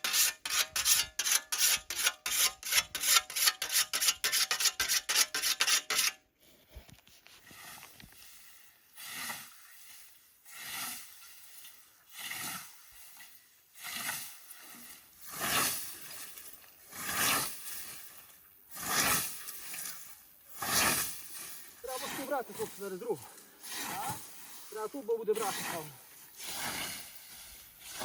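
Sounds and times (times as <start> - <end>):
scythe swishing through grass: 15.3 - 16.1, 16.9 - 18.1, 18.7 - 22.8, 25.4 - 28.0.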